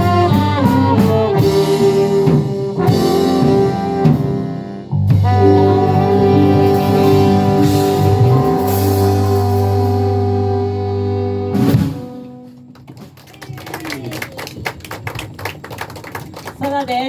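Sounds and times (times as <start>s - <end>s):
live pop band playing: 0.0s - 12.7s.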